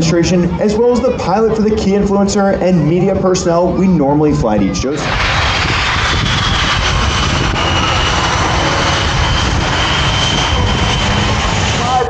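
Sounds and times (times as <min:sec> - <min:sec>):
jet engines whining: 0:02.7 - 0:12.0.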